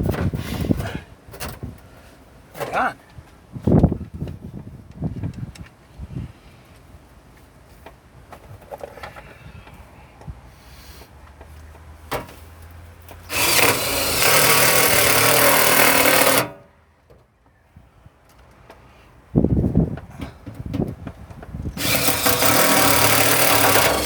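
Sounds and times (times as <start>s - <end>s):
power drill driving screw into metal: 13.3s - 16.6s, 21.8s - 24.0s.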